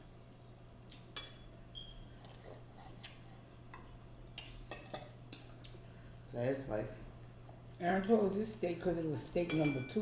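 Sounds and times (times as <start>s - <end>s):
steady low hum: 0.0s - 10.0s
cutlery clinking against dishes: 1.1s - 1.5s, 3.8s - 5.5s, 9.4s - 10.0s.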